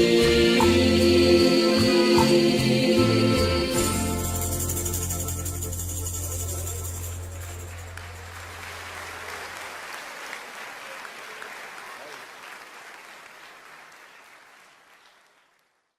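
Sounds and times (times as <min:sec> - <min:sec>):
audience applauding: 0:07.1 - 0:15.9.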